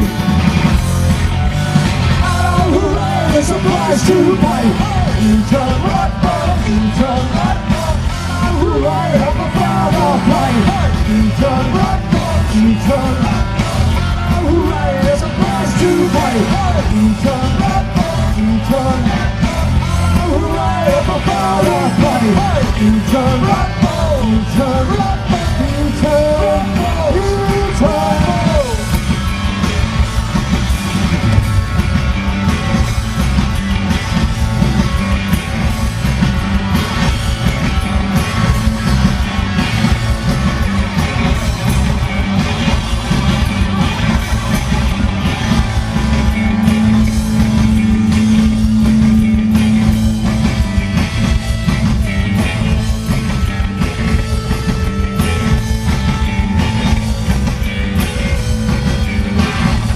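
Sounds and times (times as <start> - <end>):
bass guitar: 0.0 - 59.9
drum kit: 0.0 - 59.9
electric guitar: 0.0 - 59.9
sustained low note: 46.4 - 51.3.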